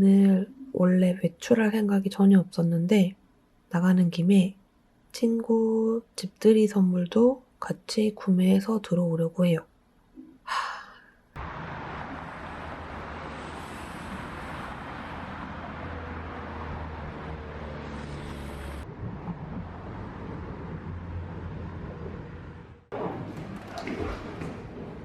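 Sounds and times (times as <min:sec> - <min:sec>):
traffic noise rumbling: 0:11.4 - 0:25.0.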